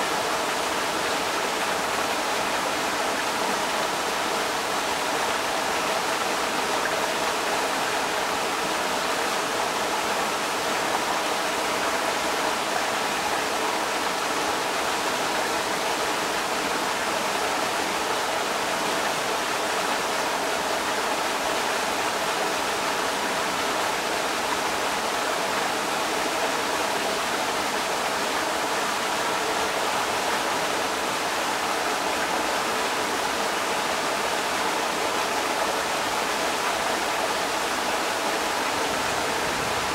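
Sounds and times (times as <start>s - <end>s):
creek water rushing over rocks: 0.0s - 39.9s.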